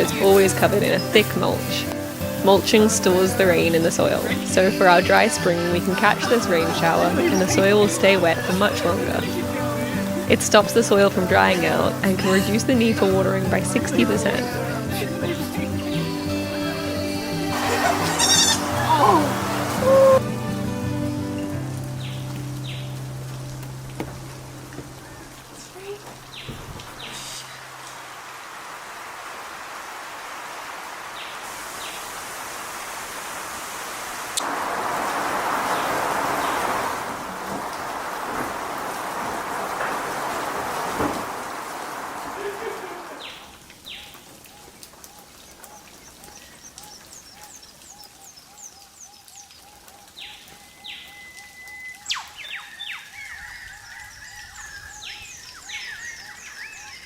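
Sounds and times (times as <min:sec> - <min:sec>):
lower bird notes: 0:00.0 - 0:28.3
rain hissing: 0:00.0 - 0:57.0
high falling bird notes: 0:13.6 - 0:28.8, 0:34.9 - 0:44.2.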